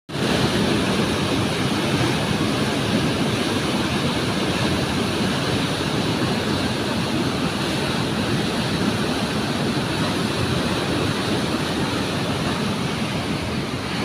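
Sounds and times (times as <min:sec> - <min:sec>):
river rushing: 0:00.1 - 0:14.0.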